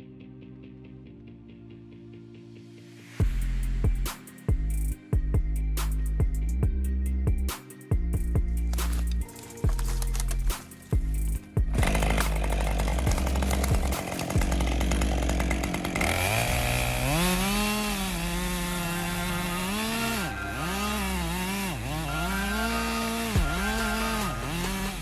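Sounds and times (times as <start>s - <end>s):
chainsaw cutting wood: 8.5s - 25.0s.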